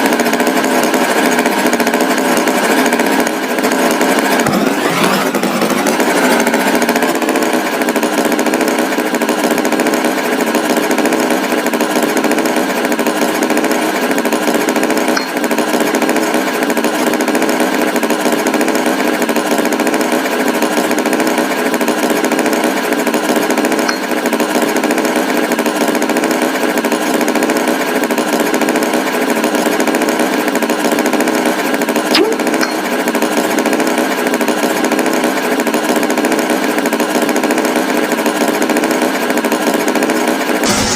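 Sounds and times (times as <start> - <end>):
tractor engine chugging: 0.0 - 13.8, 40.6 - 40.9.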